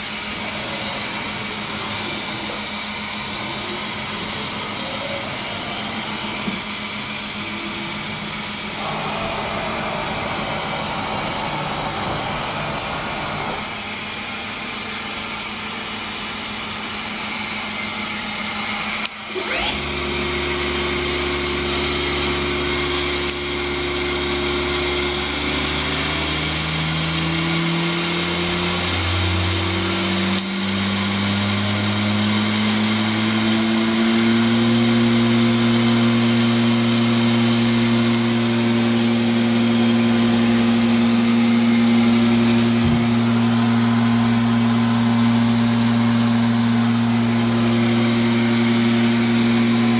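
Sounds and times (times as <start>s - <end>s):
motor tones rising in pitch: 4.6s - 14.6s, 19.3s - 20.6s, 37.3s - 49.9s
machining centre hiss: 8.8s - 14.3s.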